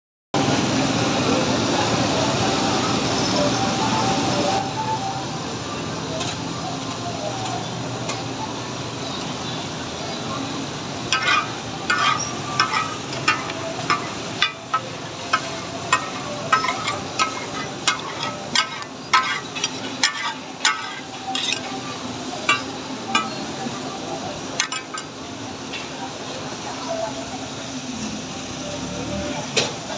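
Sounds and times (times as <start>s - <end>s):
chicken sizzling in a pan: 6.0s - 28.6s
metal spatula clinking on pan: 11.1s - 21.8s, 22.5s - 23.4s, 24.6s - 25.1s.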